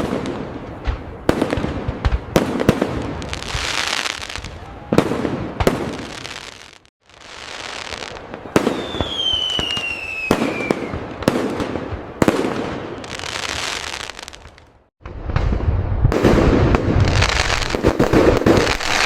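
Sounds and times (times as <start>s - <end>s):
whistling firework: 0.0s - 14.6s
firework bangs: 0.0s - 19.0s
firework crackling: 0.0s - 19.0s.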